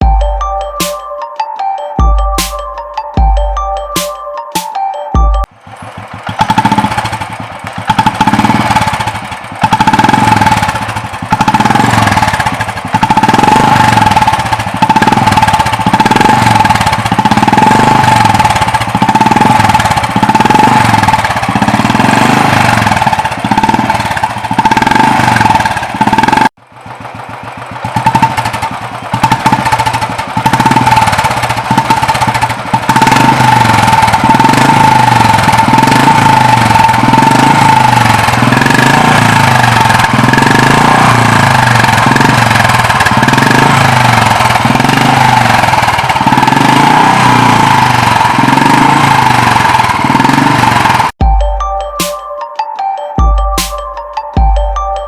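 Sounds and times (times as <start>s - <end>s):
steady high tone: 0.0s - 26.5s, 51.2s - 55.0s
motorcycle engine thumping: 5.2s - 51.4s.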